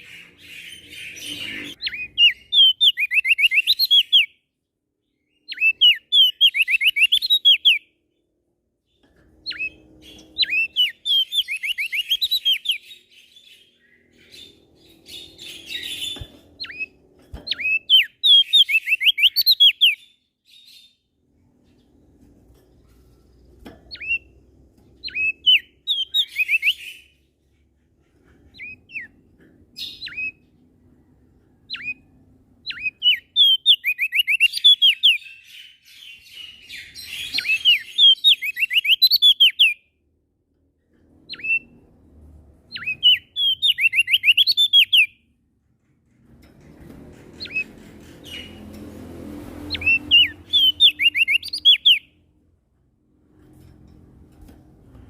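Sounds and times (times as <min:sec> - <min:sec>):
songbird whistling: 0:00.0 - 0:04.3, 0:05.4 - 0:07.9, 0:09.5 - 0:16.9, 0:17.5 - 0:20.8, 0:25.0 - 0:27.1, 0:29.8 - 0:30.4, 0:31.7 - 0:39.8, 0:42.7 - 0:45.2, 0:49.7 - 0:52.2.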